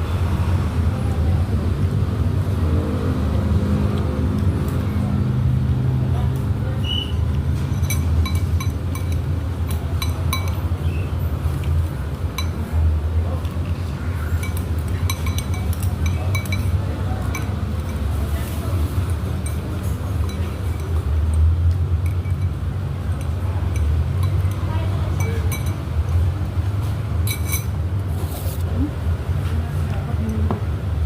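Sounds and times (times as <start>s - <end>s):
spoons and dishes clinking: 7.6s - 10.9s, 12.3s - 12.8s, 14.2s - 25.9s, 27.3s - 27.8s
faint background voices: 9.4s - 21.4s.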